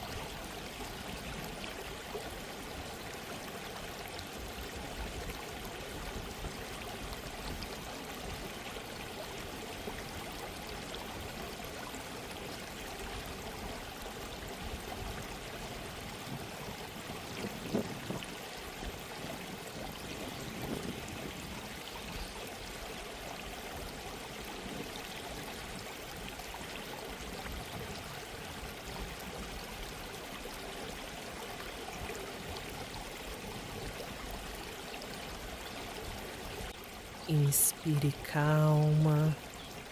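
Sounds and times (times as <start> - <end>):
stream of running water: 0.0 - 39.9.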